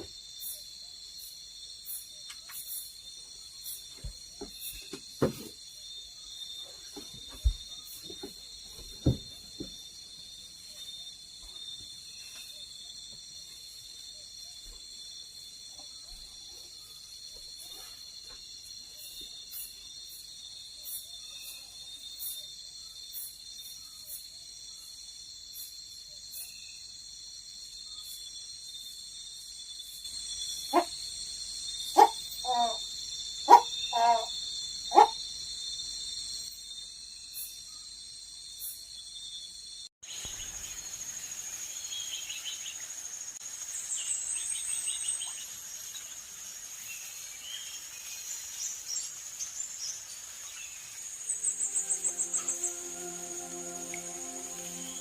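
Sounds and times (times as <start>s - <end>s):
insects shrilling: 40.0s - 55.0s.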